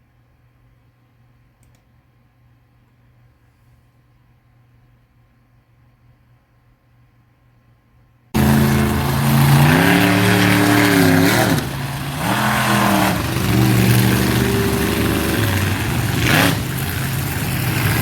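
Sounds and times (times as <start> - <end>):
truck engine revving: 8.4 - 18.0.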